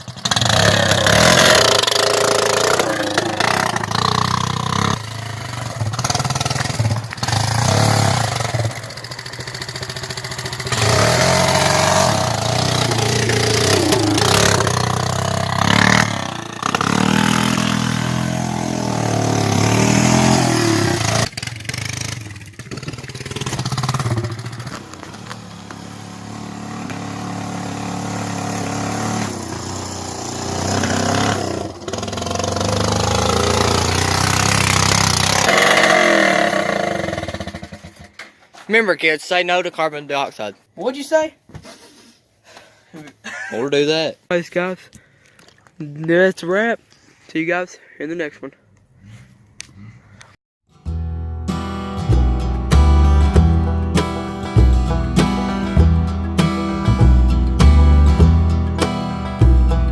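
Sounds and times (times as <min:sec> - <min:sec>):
atv engine revving: 0:00.0 - 0:38.3.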